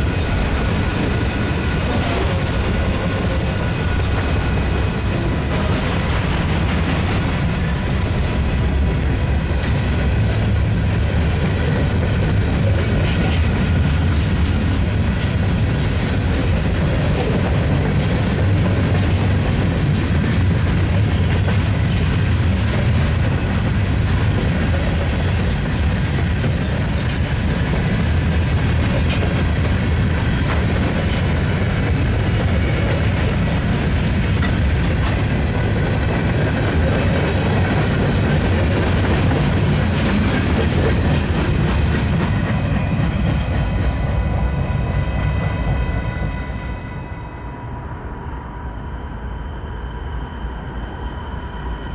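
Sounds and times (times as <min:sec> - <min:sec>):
freight train rumbling past: 0:00.0 - 0:51.9
high wheel squeal: 0:03.2 - 0:05.8, 0:24.6 - 0:28.5.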